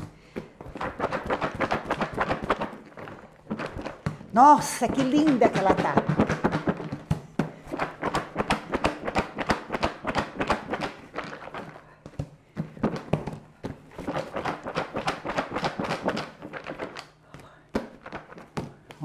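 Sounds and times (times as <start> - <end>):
popcorn rattling in plastic container: 0.6 - 11.8, 13.8 - 17.1.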